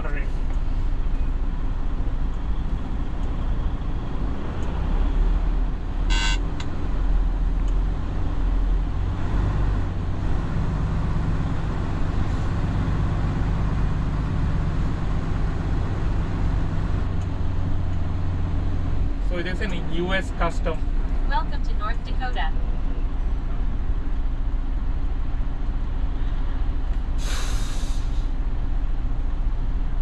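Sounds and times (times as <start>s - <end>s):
truck diesel engine running: 0.0s - 30.0s
high-pitched beep: 6.1s - 6.4s.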